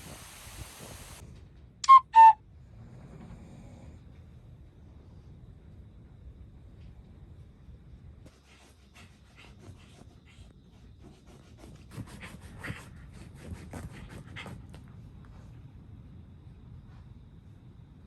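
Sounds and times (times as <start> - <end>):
dog panting quickly: 8.4 - 15.6.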